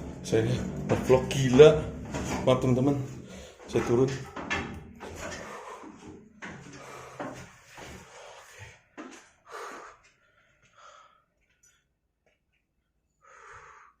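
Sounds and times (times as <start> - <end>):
man breathing hard: 3.2 - 3.7, 5.2 - 11.8, 13.1 - 14.0.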